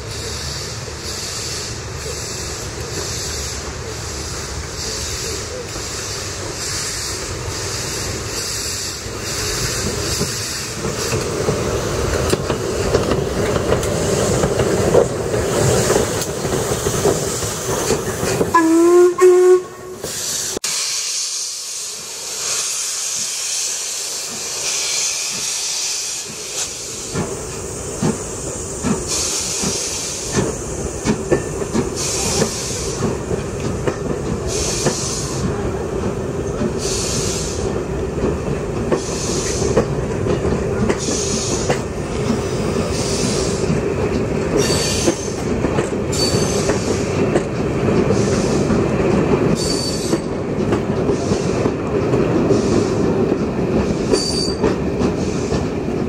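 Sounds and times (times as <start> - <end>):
steam hisses: 0.0 - 56.0
train rumble: 0.0 - 56.0
wheels clicking over rail joints: 9.8 - 18.7, 38.1 - 56.0
high wheel squeals: 44.6 - 45.4, 46.1 - 47.1, 49.5 - 50.3, 54.1 - 55.5.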